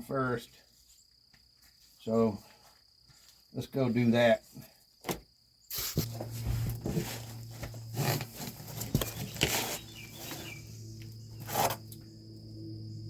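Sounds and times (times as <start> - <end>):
insects chirping: 0.0 - 13.0
steady low hum: 5.7 - 13.0.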